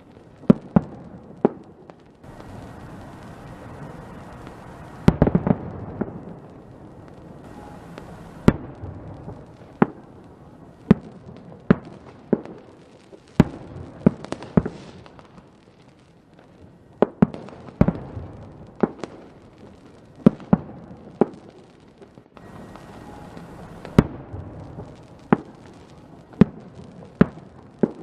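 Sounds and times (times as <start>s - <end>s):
fireworks bangs: 0.0s - 28.0s
firework hiss: 2.2s - 16.0s, 21.0s - 28.0s.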